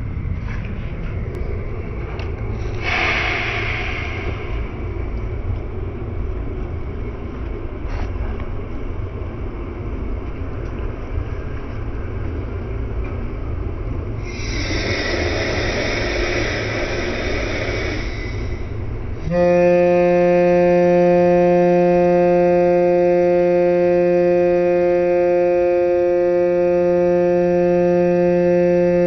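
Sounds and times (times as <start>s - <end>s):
rushing noise: 0.0s - 29.0s
train rumbling along track: 0.0s - 29.0s
loud steady pitched tone: 2.5s - 7.4s, 11.2s - 29.0s.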